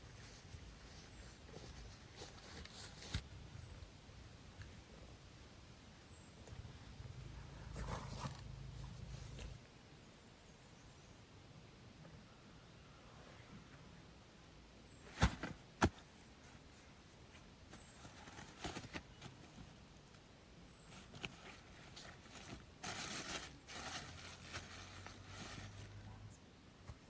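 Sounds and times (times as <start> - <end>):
rustling and scraping handling noises: 0.0 - 3.2, 7.6 - 9.6, 14.9 - 27.0.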